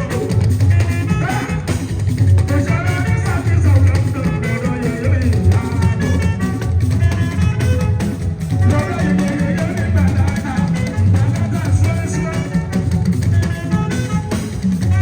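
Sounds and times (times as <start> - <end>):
drums and rattling percussion: 0.0 - 15.0
plucked guitar: 0.0 - 15.0
pulsing bass beat: 2.1 - 13.6.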